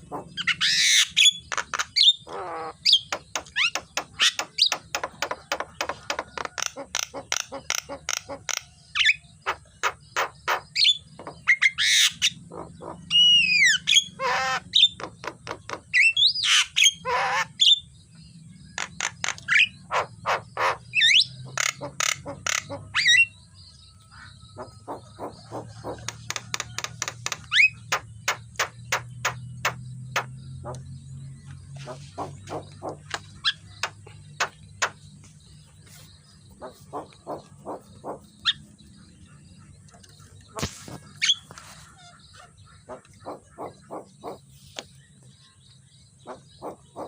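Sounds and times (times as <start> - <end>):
bird singing clicks and whistles: 1.0 - 12.3, 18.8 - 20.4, 25.2 - 30.9, 32.2 - 35.3.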